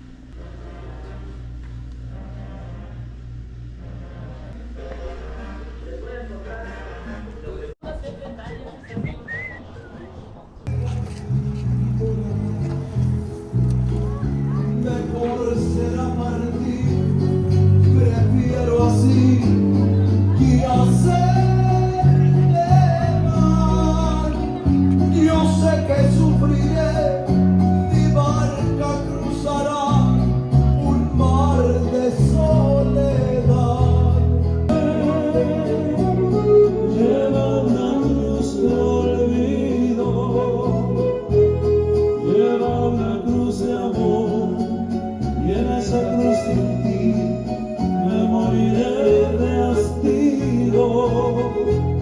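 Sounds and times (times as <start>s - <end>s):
plucked bass line: 10.7s - 52.0s
strummed guitars: 10.7s - 52.0s
man singing: 14.2s - 52.0s.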